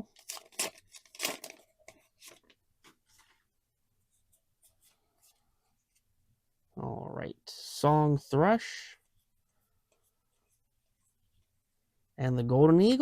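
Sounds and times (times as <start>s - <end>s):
wrapper being torn open: 0.0s - 2.5s.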